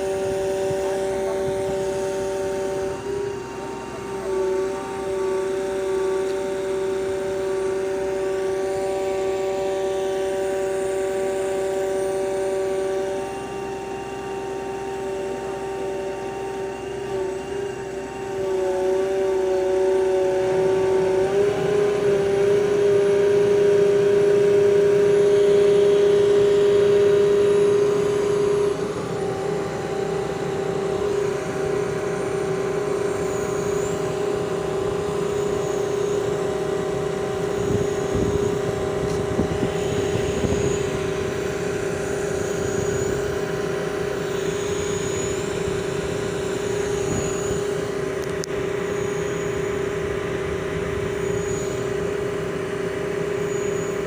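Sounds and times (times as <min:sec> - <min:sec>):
concrete pump machine whine: 0:00.0 - 0:54.0.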